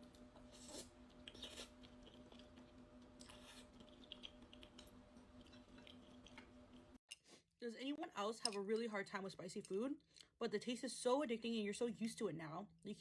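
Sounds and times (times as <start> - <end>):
steady low hum: 0.0 - 7.0
quiet chewing: 0.1 - 7.0.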